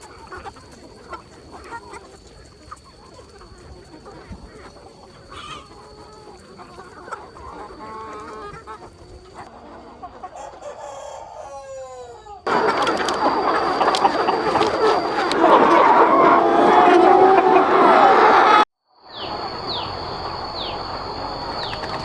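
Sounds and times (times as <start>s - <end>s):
chickens clucking: 0.0s - 22.0s
rooster crowing: 10.6s - 22.0s.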